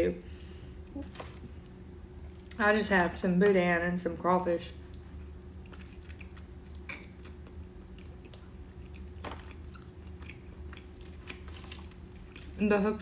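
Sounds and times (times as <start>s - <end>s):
person chewing food: 4.8s - 12.6s.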